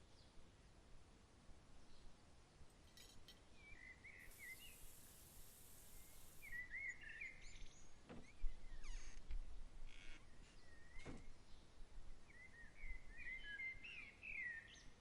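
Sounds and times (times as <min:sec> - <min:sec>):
songbird chirping: 0:03.5 - 0:15.0
high hiss: 0:04.2 - 0:07.0.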